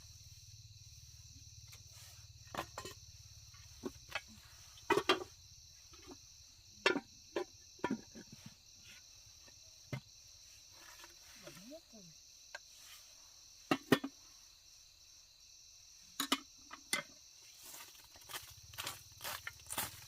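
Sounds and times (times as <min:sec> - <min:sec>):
crickets trilling: 0:00.0 - 0:20.0
knocks and clatters of objects: 0:01.7 - 0:06.2, 0:06.8 - 0:10.1, 0:13.7 - 0:14.2, 0:17.8 - 0:20.0.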